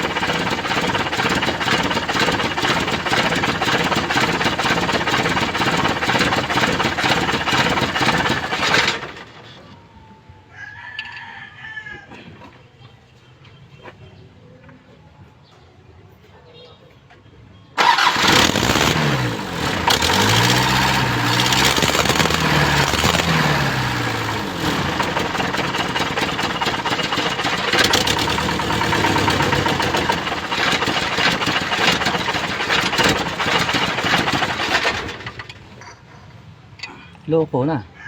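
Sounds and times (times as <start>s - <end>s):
diesel engine revving and running: 0.0s - 9.4s, 17.8s - 35.6s.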